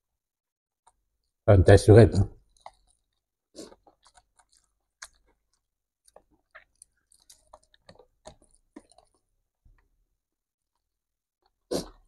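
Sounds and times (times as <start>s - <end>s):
person chewing with mouth clicks: 2.4s - 9.4s.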